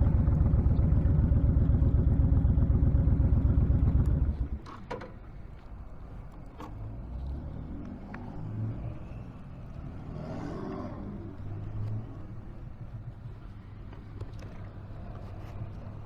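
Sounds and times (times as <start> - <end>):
motorcycle engine running: 0.0 - 4.6
hum of passing vehicles: 0.0 - 16.0.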